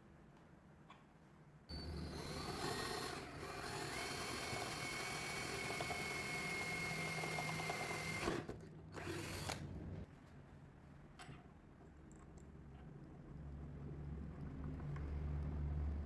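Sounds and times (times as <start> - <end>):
power tool whining: 1.7 - 9.7.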